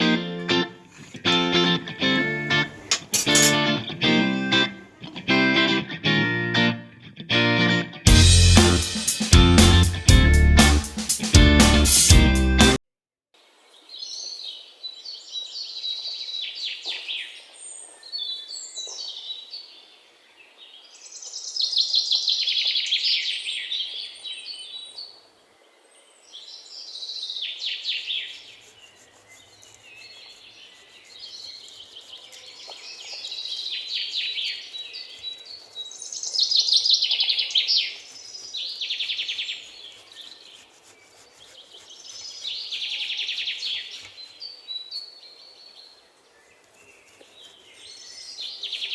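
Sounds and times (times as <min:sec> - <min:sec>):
birds chirping and trilling: 0:25.8 - 0:48.9.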